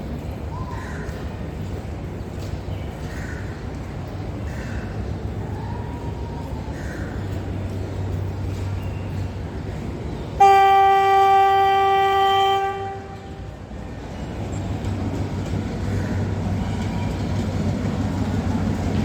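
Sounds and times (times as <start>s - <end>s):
locomotive engine rumbling: 7.0s - 19.0s
locomotive horn blast: 10.4s - 13.6s.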